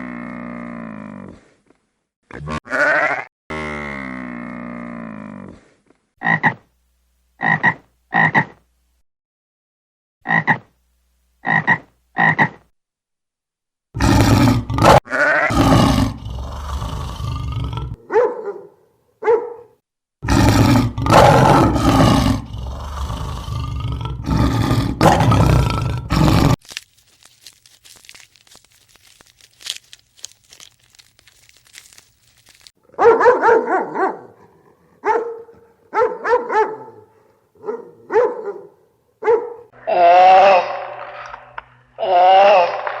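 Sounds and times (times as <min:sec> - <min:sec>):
rough animal calls: 0:14.0 - 0:18.0, 0:20.2 - 0:32.7.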